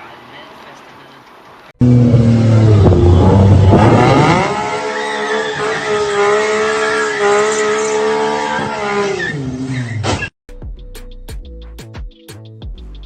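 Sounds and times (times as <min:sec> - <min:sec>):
car low rumble: 0:01.8 - 0:06.2
rising pitched car sound: 0:01.8 - 0:09.5.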